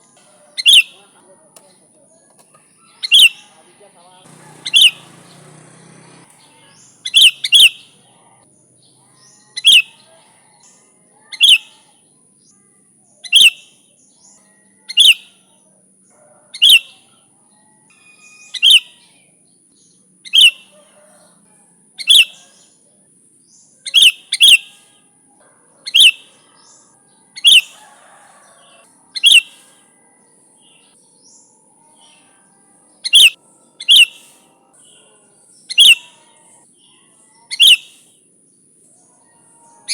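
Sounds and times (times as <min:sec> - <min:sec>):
bird giving sharp calls: 0:00.5 - 0:01.1, 0:02.9 - 0:03.6, 0:04.2 - 0:08.0, 0:11.4 - 0:11.8, 0:13.3 - 0:13.7, 0:16.6 - 0:17.0, 0:20.3 - 0:20.7, 0:23.9 - 0:24.9, 0:25.9 - 0:26.4, 0:27.4 - 0:27.8, 0:29.2 - 0:29.8, 0:33.1 - 0:34.5, 0:35.7 - 0:36.5, 0:37.5 - 0:38.1.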